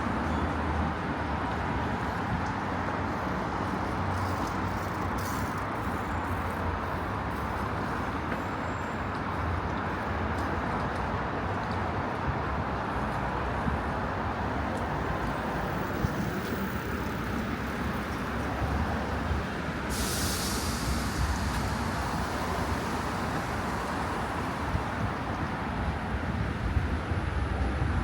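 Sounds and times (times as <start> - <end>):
loud air hiss: 19.8 - 24.3.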